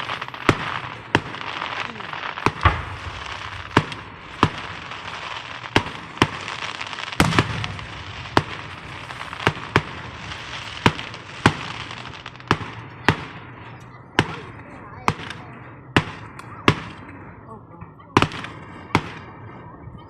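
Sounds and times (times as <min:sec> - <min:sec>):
fireworks crackling hiss: 0:00.0 - 0:13.6
firework bangs: 0:00.0 - 0:17.1, 0:18.2 - 0:19.6.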